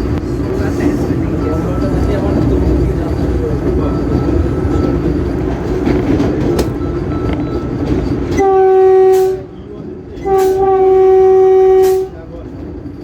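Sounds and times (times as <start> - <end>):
train running rumble: 0.0 - 13.0
train horn blast: 8.3 - 9.5, 10.2 - 12.2.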